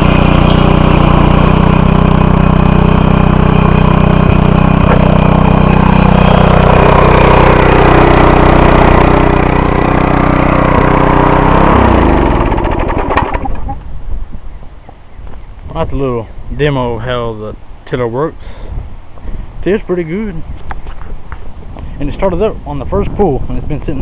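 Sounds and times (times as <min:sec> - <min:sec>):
engine winding down: 0:00.0 - 0:13.9
tiller engine running: 0:00.0 - 0:13.9.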